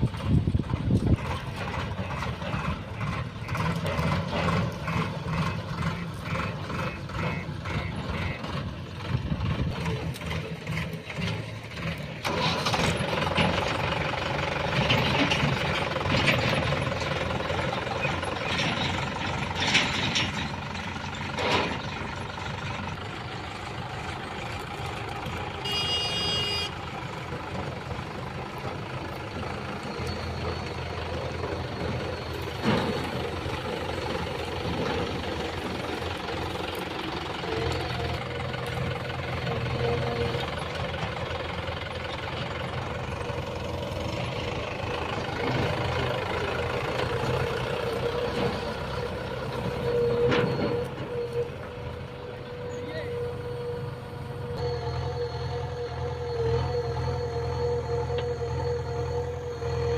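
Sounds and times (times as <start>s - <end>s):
diesel engine working under load: 0.0s - 59.9s
tractor engines running: 0.0s - 59.9s
regular beeping: 25.6s - 59.9s.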